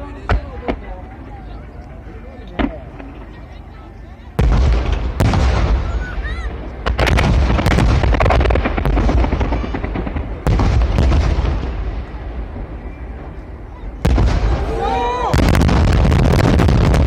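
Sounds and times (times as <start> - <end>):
fireworks booming: 4.3 - 17.0
rapid crackling bangs: 4.4 - 6.0, 6.6 - 12.8, 14.0 - 14.7, 15.3 - 17.0.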